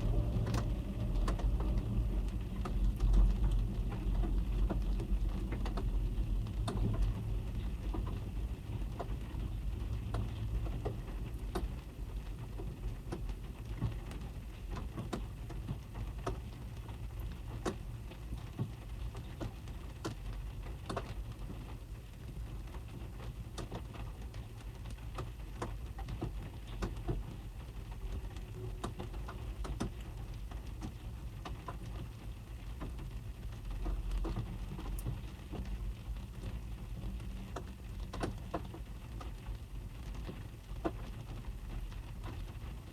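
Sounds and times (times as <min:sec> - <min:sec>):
low muffled rumble: 0:00.0 - 0:12.8
rain drumming on car roof: 0:00.0 - 0:42.9.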